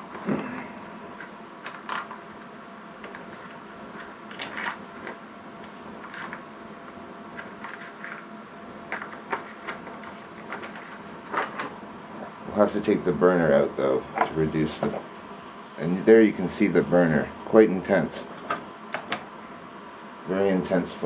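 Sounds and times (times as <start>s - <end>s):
steady low hiss: 0.0s - 21.0s.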